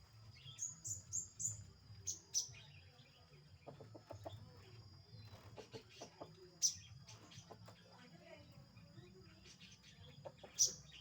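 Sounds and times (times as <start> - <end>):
bird chirping: 8.8 - 11.0.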